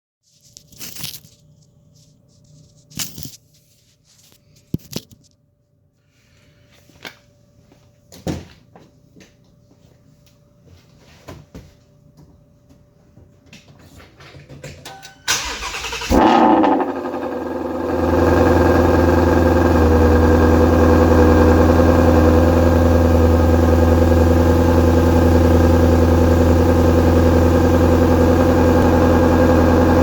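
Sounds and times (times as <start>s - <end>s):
car engine starting: 15.3s - 30.0s.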